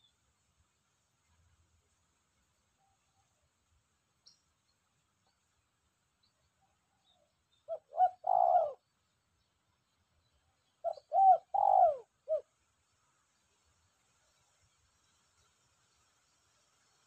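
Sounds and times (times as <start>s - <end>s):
dove cooing: 7.7s - 8.9s, 10.8s - 12.5s.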